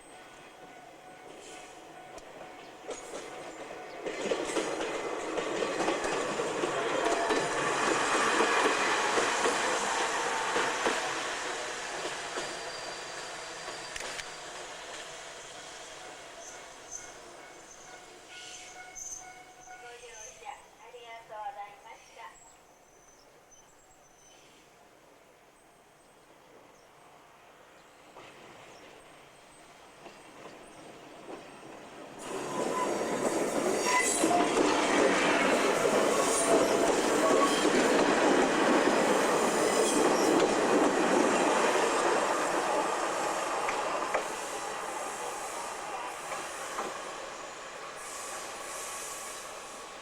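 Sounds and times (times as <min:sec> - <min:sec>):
train wheels clacking over rail joints: 0:01.5 - 0:15.2, 0:30.0 - 0:44.8.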